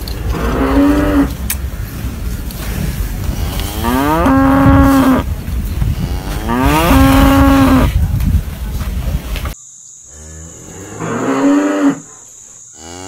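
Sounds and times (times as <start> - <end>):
bull mooing: 0.0 - 7.9
constant low rumble: 0.0 - 9.6.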